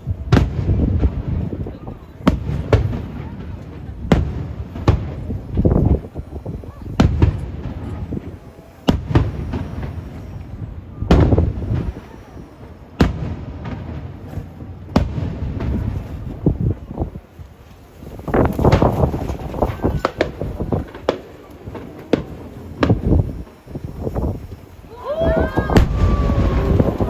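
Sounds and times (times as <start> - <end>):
firework shells bursting: 18.1 - 27.0.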